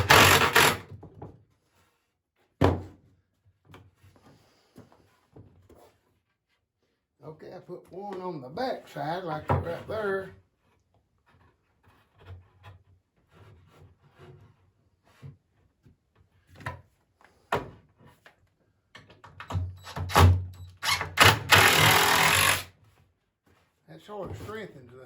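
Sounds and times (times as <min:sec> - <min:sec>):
loud rasping noise: 0:00.0 - 0:00.8, 0:20.8 - 0:22.7
wooden knocks and thunks: 0:02.6 - 0:03.0.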